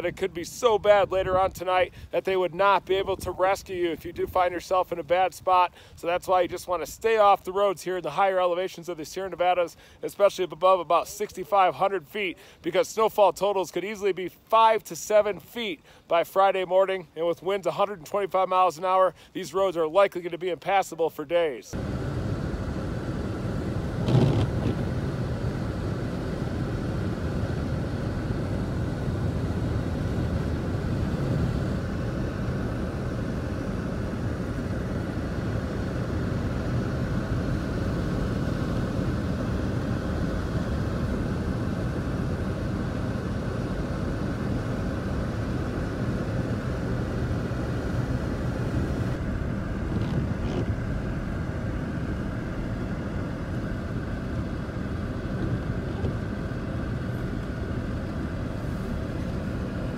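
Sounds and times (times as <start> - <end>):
vehicle engine and road noise: 21.7 - 59.9.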